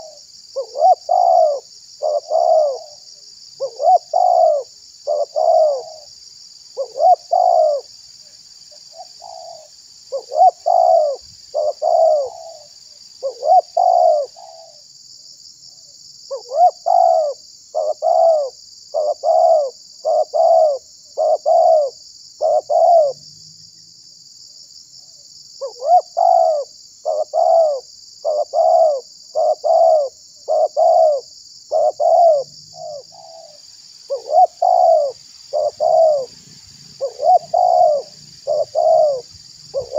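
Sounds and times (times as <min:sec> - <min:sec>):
dove cooing: 0:00.0 - 0:06.1, 0:06.8 - 0:07.9, 0:08.9 - 0:14.8, 0:16.3 - 0:23.2, 0:25.6 - 0:39.9
steady high hiss: 0:32.4 - 0:39.9.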